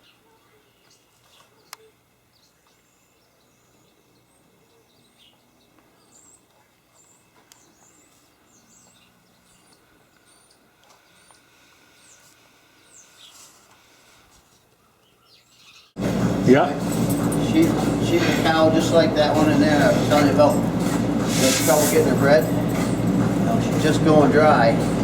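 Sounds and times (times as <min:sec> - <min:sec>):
steady low hum: 0:16.0 - 0:25.0.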